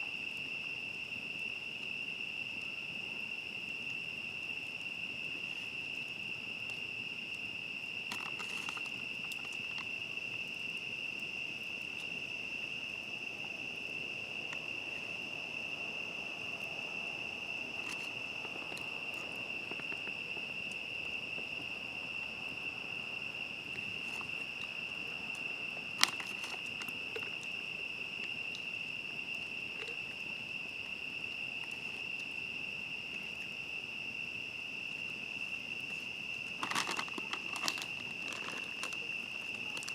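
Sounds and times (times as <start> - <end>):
crickets chirping: 0.0 - 39.9
campfire crackling: 0.1 - 39.9.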